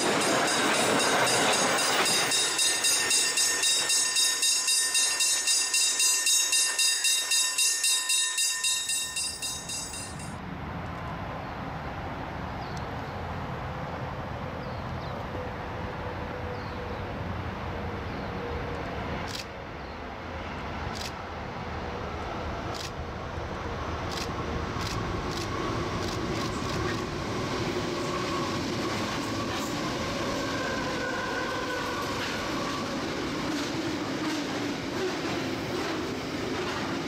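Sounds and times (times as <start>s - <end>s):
high metallic wheel ringing: 0.0s - 10.4s
distant diesel locomotives rumbling: 0.0s - 37.0s.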